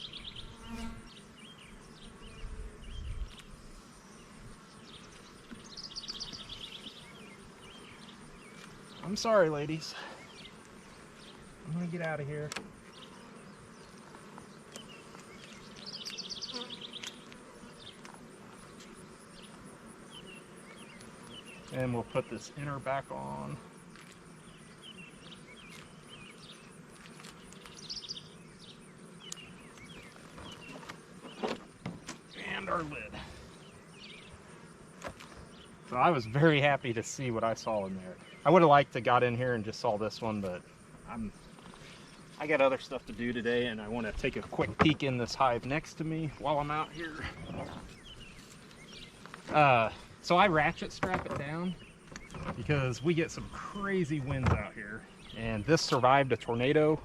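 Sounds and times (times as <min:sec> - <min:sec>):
bird chirping: 0:00.0 - 0:11.9, 0:12.9 - 0:22.6, 0:23.9 - 0:31.6, 0:32.2 - 0:34.4, 0:41.1 - 0:56.8
honeybees buzzing: 0:00.0 - 0:57.0
wooden hive cover clicks: 0:12.0 - 0:12.8, 0:44.3 - 0:45.2, 0:50.8 - 0:52.8.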